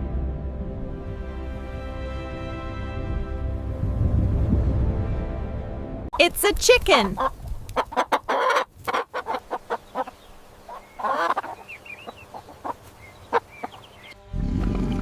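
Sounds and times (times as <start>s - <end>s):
chicken clucking: 7.0s - 14.2s.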